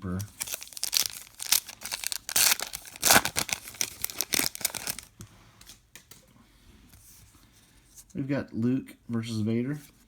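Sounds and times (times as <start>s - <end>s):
cards rustling: 0.2s - 5.1s
wrapper crinkling and tearing: 0.3s - 5.1s.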